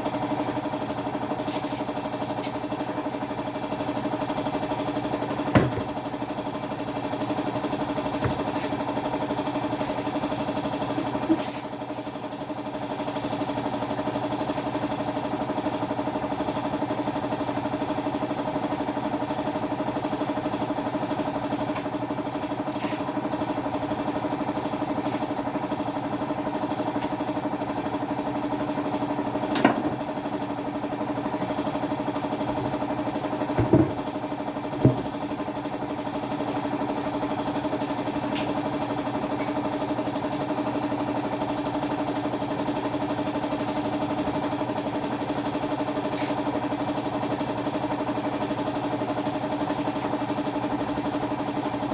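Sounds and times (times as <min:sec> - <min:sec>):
motor humming: 0:04.0 - 0:10.1, 0:27.8 - 0:36.2
sharp clicks and knocks: 0:29.4 - 0:30.1.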